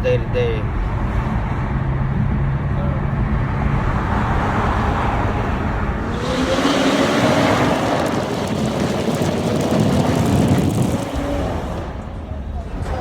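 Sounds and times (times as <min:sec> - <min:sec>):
car engine revving: 0:03.3 - 0:12.9.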